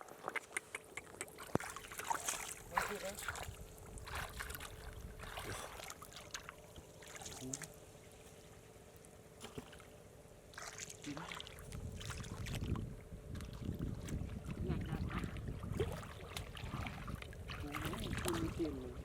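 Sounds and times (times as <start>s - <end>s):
water sloshing: 0.0s - 19.0s
water splashing and trickling: 0.0s - 19.0s.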